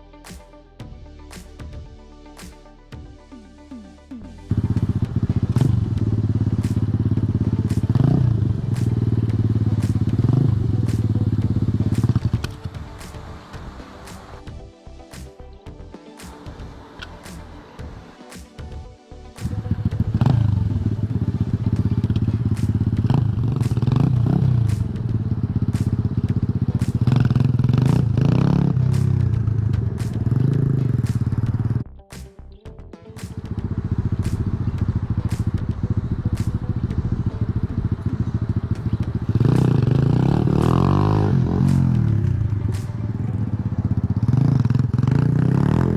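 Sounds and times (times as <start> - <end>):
pit bike engine revving: 4.5 - 14.4, 19.4 - 31.8, 33.3 - 45.9.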